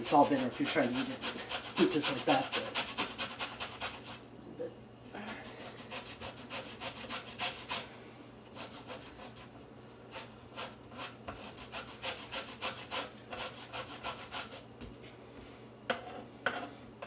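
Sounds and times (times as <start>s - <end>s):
peel rasping on a grater: 0.0s - 4.2s, 5.5s - 7.9s, 8.5s - 9.5s, 10.1s - 14.6s.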